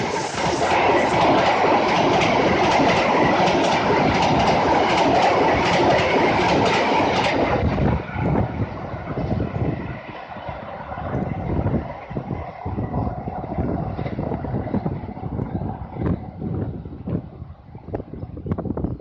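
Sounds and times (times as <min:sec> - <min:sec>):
train wheels clacking: 0:00.0 - 0:07.7
train rushing past: 0:00.0 - 0:18.0.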